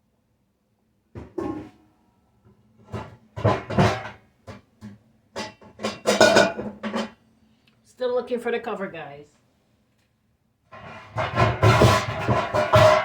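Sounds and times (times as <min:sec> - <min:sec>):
cookware clattering: 0:05.4 - 0:07.2, 0:10.8 - 0:13.0.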